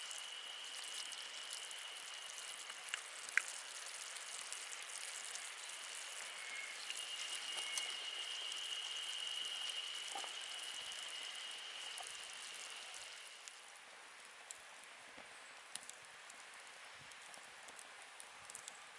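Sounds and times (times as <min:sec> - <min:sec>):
wood fire crackling and hissing: 0:00.0 - 0:18.9
thin high whistle: 0:06.2 - 0:12.0.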